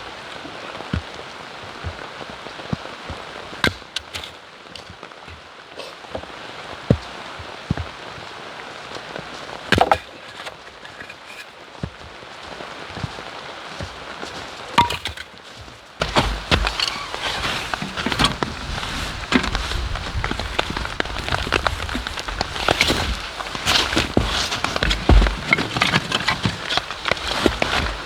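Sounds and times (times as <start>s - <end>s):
rain pattering: 15.8s - 28.0s.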